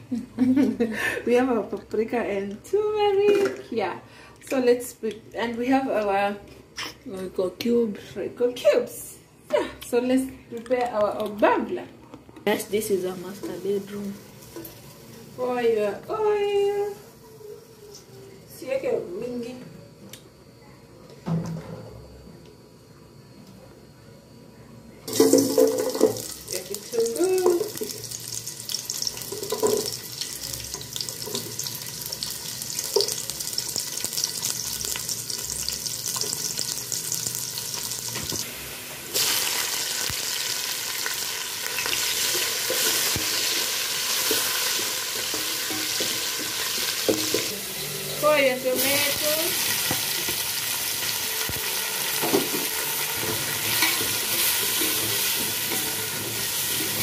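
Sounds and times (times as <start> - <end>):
vegetables sizzling in hot oil: 12.5 - 17.8, 25.1 - 57.0.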